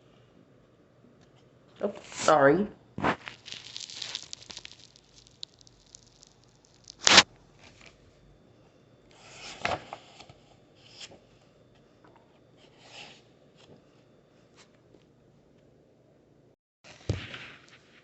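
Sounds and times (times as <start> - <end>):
paper rustling and crackling: 3.0 - 7.9.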